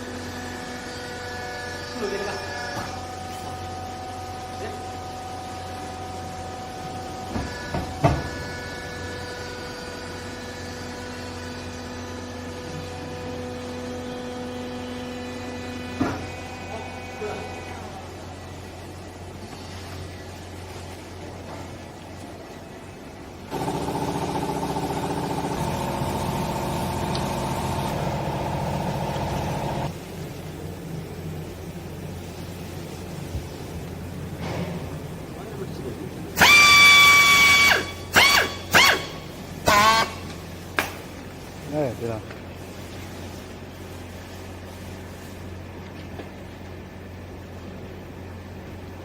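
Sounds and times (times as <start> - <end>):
hydraulic baler humming: 0.0 - 19.6, 23.1 - 32.2.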